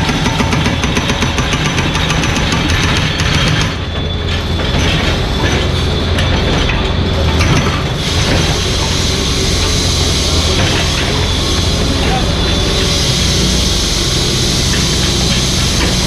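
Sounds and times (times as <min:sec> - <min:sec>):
diesel engine humming: 0:00.0 - 0:16.0.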